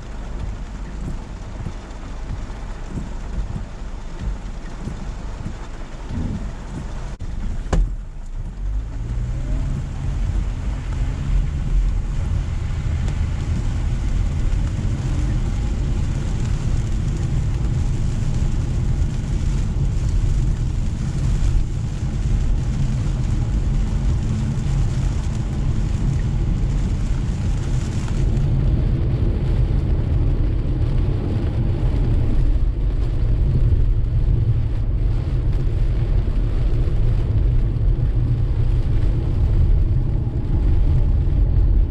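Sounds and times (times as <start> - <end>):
car road rumble: 0.0 - 41.9
hiss of rain and tyre spray: 0.0 - 41.9
brief thump: 7.7 - 8.0.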